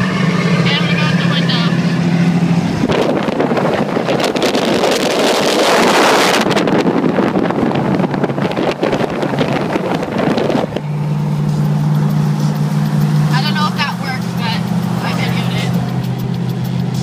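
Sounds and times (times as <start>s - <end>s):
low engine hum: 0.0s - 17.0s
wind and road noise: 0.0s - 17.0s.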